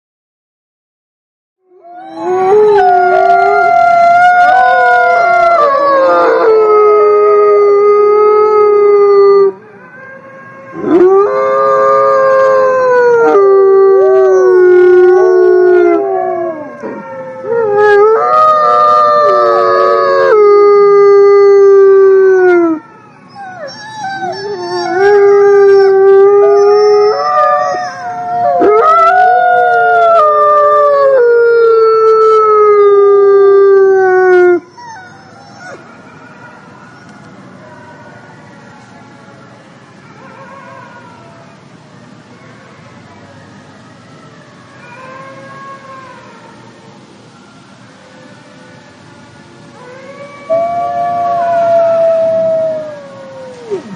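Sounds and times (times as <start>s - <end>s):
wolves howling in chorus: 1.8s - 9.4s, 10.7s - 31.8s.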